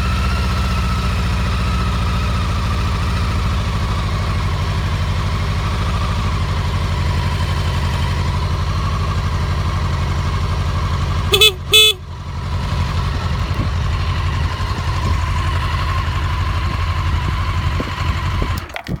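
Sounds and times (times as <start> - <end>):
motorcycle engine idling: 0.0 - 18.9
horn short beeps: 11.3 - 12.0.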